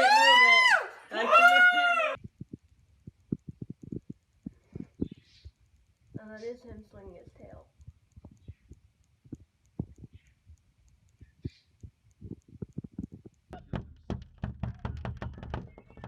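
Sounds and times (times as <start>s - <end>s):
soft thumps and taps: 2.2s - 5.6s, 7.8s - 10.3s, 11.2s - 16.0s.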